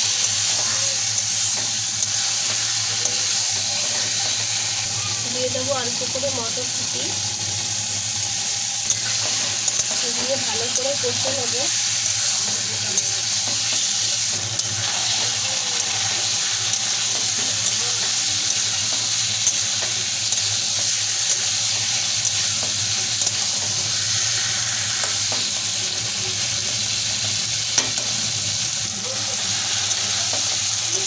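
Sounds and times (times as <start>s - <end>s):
chicken sizzling in a pan: 0.0s - 31.0s.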